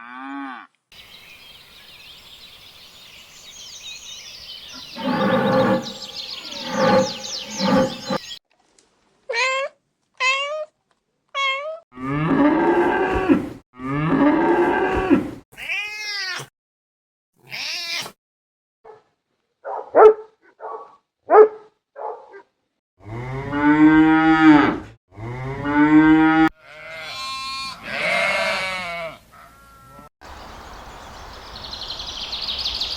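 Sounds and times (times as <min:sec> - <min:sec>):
cattle mooing: 0:04.8 - 0:08.3, 0:12.0 - 0:15.4
cats meowing: 0:15.6 - 0:16.5, 0:17.4 - 0:18.2.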